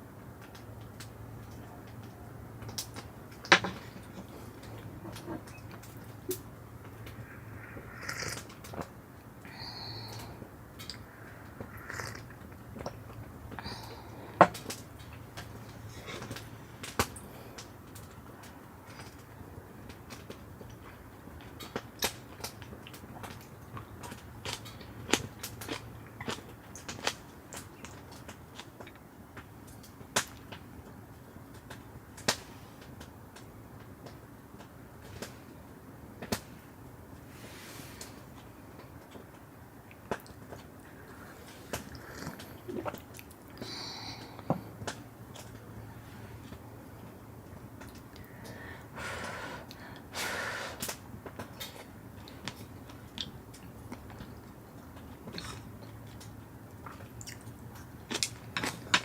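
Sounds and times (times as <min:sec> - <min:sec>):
firewood crackling: 0:10.2 - 0:59.0
fire hissing: 0:49.0 - 0:51.0.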